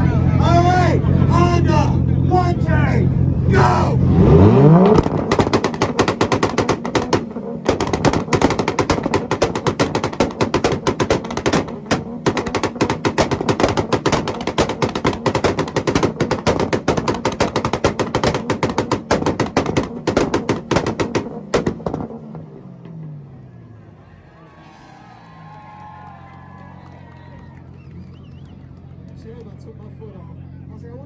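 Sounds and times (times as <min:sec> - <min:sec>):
exhaust pops and bangs: 0:03.5 - 0:22.5.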